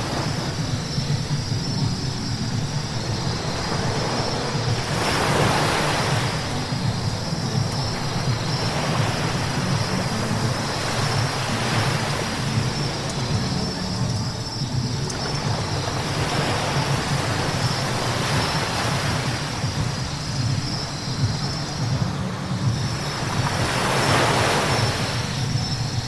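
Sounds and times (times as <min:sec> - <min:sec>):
tyres hissing on wet road: 0:00.0 - 0:01.9.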